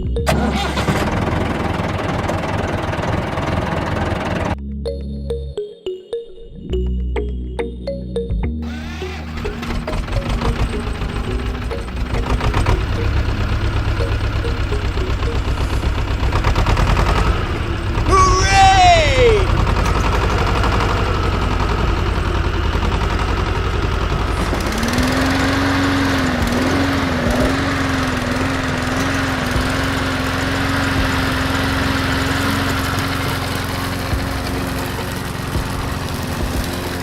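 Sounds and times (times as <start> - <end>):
small motor running: 8.6 - 18.1, 19.5 - 37.0.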